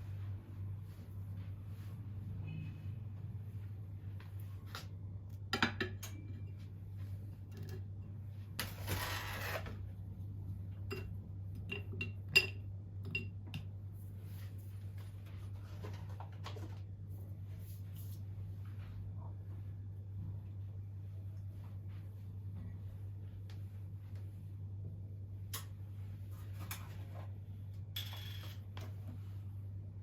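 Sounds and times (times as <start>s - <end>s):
dishes and utensils clinking: 10.8s - 13.7s.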